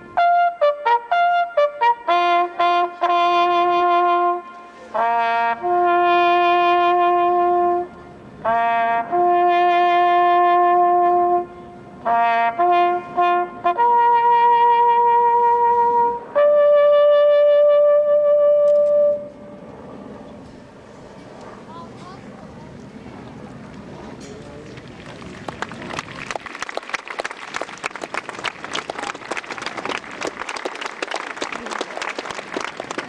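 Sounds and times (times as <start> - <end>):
bugle call: 0.0 - 19.4.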